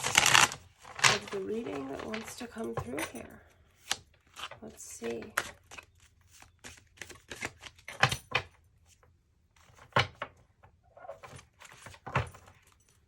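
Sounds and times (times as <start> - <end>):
cards shuffling and clicking: 3.8 - 8.4.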